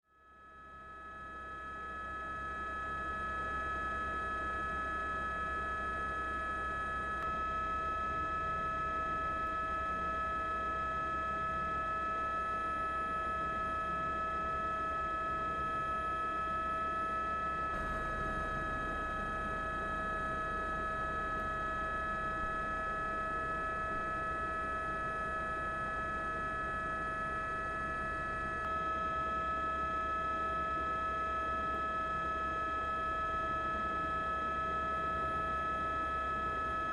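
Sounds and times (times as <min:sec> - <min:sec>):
steady electronic drone: 0:17.7 - 0:22.6.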